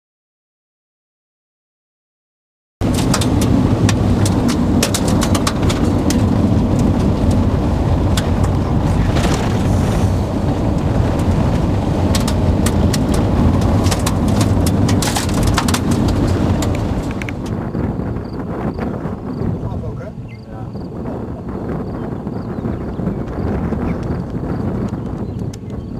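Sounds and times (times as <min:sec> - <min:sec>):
raindrops tapping surfaces: 0:02.8 - 0:09.6, 0:10.4 - 0:17.5
wind rumble on microphone: 0:02.8 - 0:25.9.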